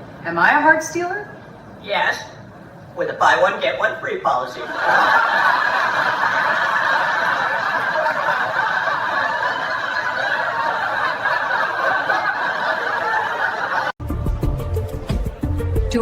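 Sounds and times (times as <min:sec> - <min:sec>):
audience laughter: 0:04.6 - 0:14.0.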